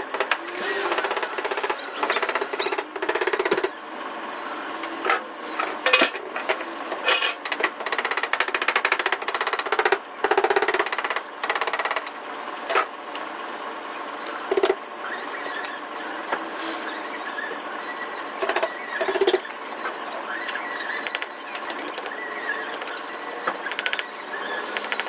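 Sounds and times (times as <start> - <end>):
rapid mechanical tapping: 0.0 - 3.8, 6.4 - 12.2, 20.4 - 25.0.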